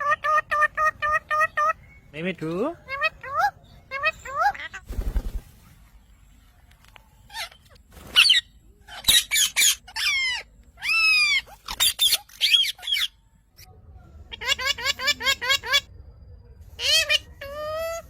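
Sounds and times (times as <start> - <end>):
parrot squawking: 2.8 - 4.8, 8.2 - 13.2.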